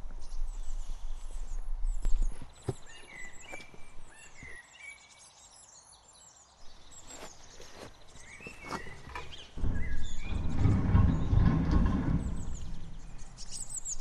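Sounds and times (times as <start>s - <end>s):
small birds chirping: 0.0s - 14.0s
faint knocks: 7.6s - 14.0s.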